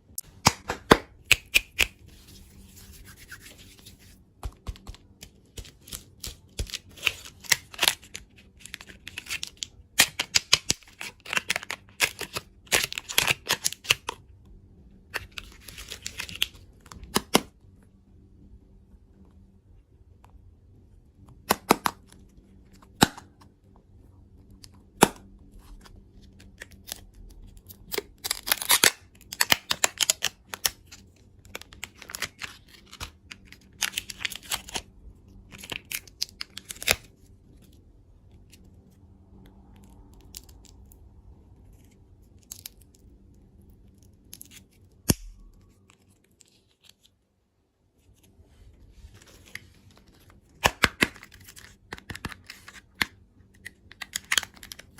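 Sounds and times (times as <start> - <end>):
wrappers crackling and tearing: 26.5 - 34.9.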